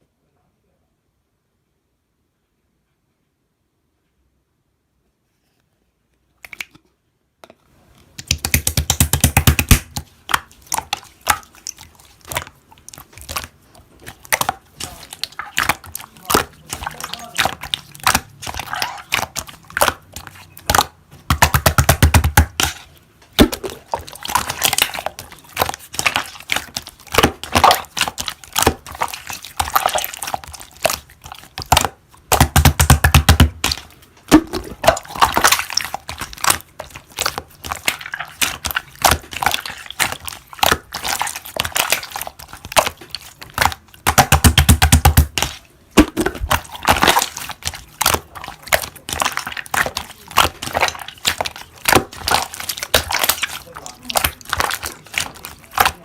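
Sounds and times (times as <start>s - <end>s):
slime squished by hand: 7.8s - 56.0s
rapid clicking pops: 8.2s - 10.0s.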